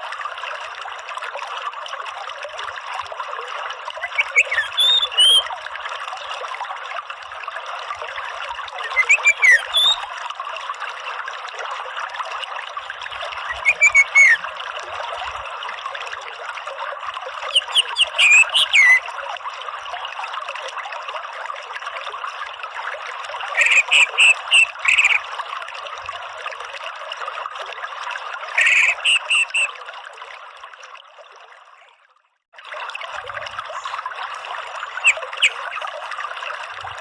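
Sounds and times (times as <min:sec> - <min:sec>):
trickle of running water: 0:00.0 - 0:37.0
thrush singing whistled notes: 0:04.0 - 0:05.5, 0:08.8 - 0:10.0, 0:13.4 - 0:14.4, 0:17.5 - 0:19.0, 0:23.6 - 0:25.2, 0:28.6 - 0:29.7, 0:35.0 - 0:35.7.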